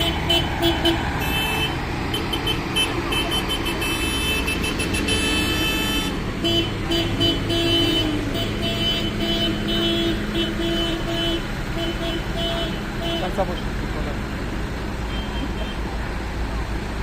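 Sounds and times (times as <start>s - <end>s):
horn-like beeps: 0.0s - 13.4s
tractor engine running: 0.0s - 17.0s.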